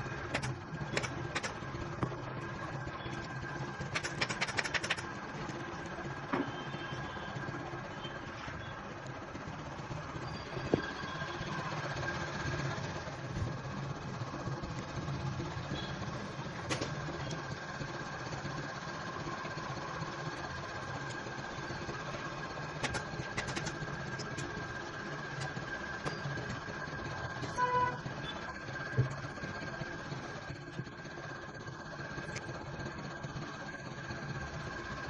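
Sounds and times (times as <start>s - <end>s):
mechanical hum with high tone: 0.0s - 35.0s
sharp clicks: 0.3s - 1.6s, 3.9s - 5.1s.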